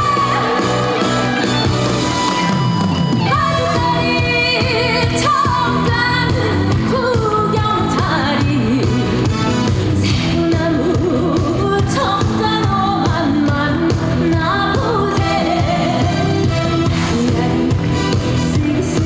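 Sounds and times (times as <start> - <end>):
pop backing music: 0.0 - 19.0
woman singing with vibrato: 3.2 - 9.4, 10.0 - 19.0.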